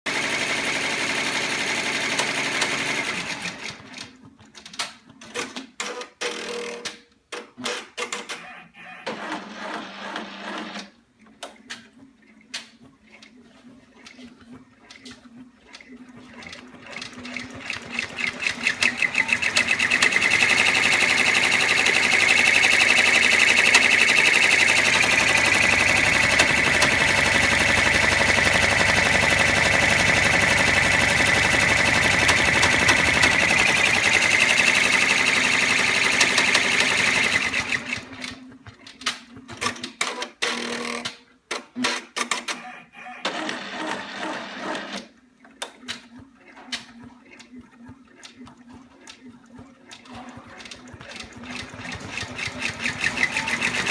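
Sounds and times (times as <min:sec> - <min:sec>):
irregular clicks and clunks: 0:03.8 - 0:08.6.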